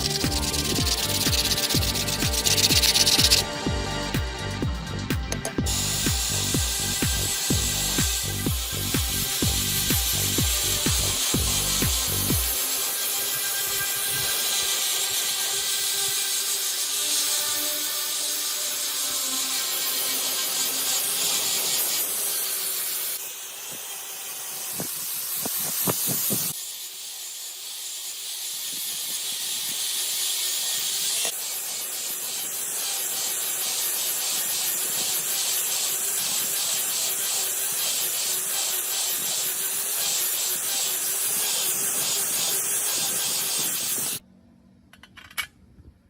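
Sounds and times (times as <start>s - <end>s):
compressed air tool hissing: 0.0s - 4.6s, 5.4s - 44.2s.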